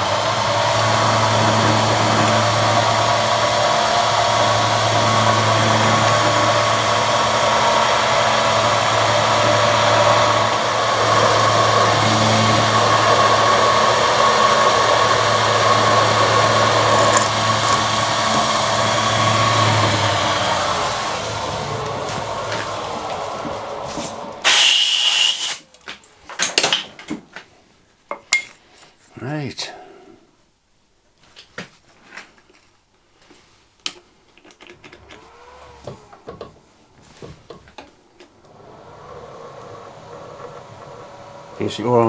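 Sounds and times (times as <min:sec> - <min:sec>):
electric drill running under load: 0:00.0 - 0:23.5, 0:24.4 - 0:25.6, 0:35.0 - 0:36.3, 0:38.4 - 0:42.0.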